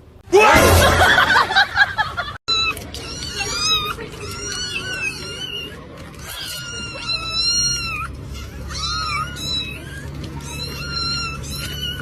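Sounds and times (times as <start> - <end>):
cat meowing: 2.5 - 12.0.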